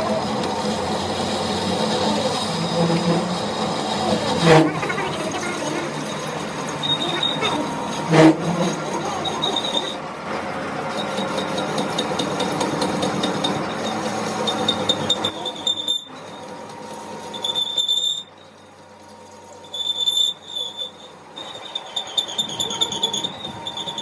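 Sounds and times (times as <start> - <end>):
high-pitched squeal: 0.0 - 12.2, 19.5 - 24.0
metalworking tool rasping: 1.1 - 10.0.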